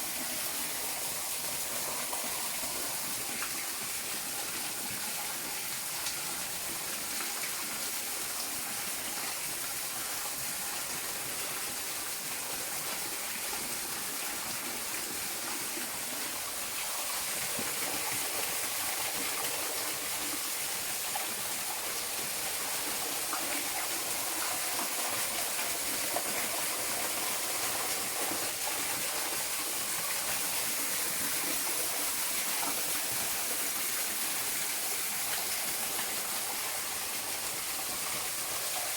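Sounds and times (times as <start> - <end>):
stream water rushing: 15.8 - 38.9.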